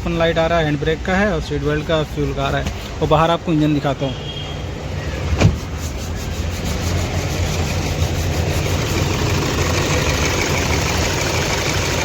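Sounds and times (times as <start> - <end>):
diesel engine idling roughly: 0.0 - 4.1, 6.8 - 12.0.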